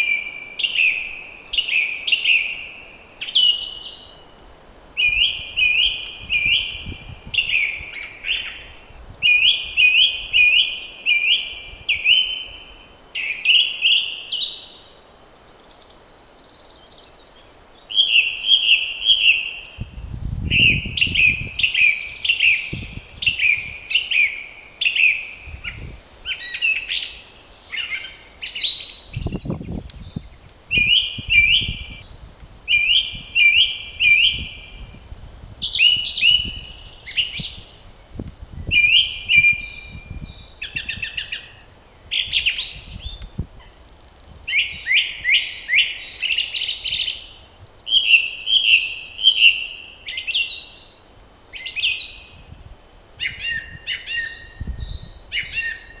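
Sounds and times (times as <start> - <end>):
songbirds singing: 0.0 - 56.0
wind gusts rumbling: 5.0 - 10.5, 19.8 - 23.9, 25.4 - 26.3, 29.1 - 45.3, 52.2 - 55.6.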